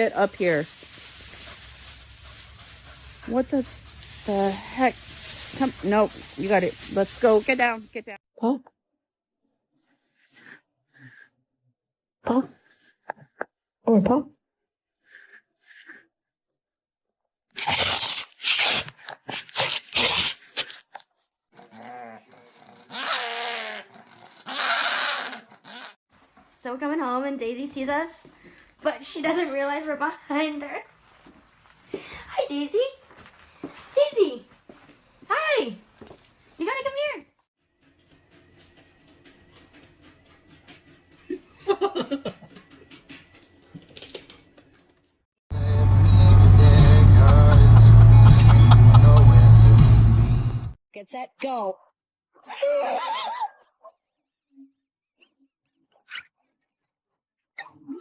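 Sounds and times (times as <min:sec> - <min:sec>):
person laughing: 0:41.3 - 0:42.6, 0:47.4 - 0:49.6.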